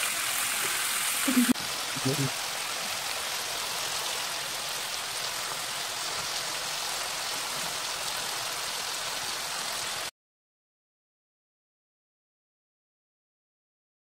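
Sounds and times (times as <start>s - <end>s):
chicken sizzling in hot oil: 0.0s - 10.1s.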